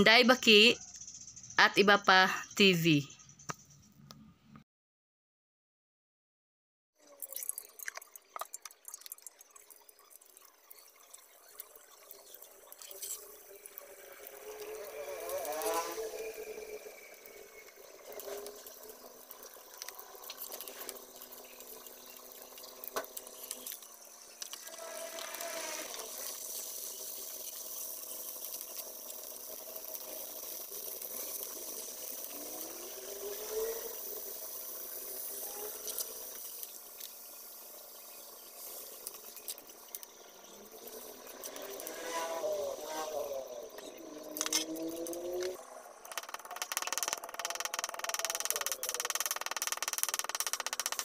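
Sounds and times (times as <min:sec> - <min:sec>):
squid sizzling in oil: 0:07.0 - 0:51.0
rising whine: 0:13.1 - 0:22.1, 0:23.4 - 0:26.9, 0:30.6 - 0:37.1, 0:37.8 - 0:51.0.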